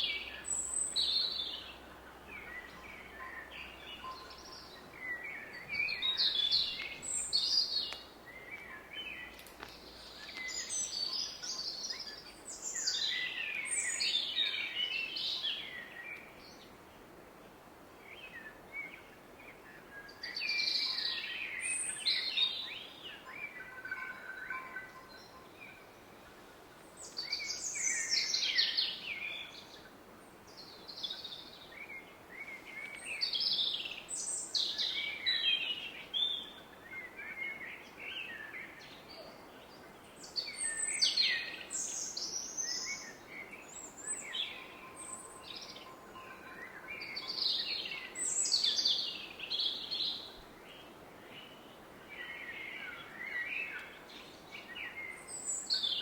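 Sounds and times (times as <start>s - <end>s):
songbirds singing: 0.0s - 17.1s, 17.9s - 56.0s.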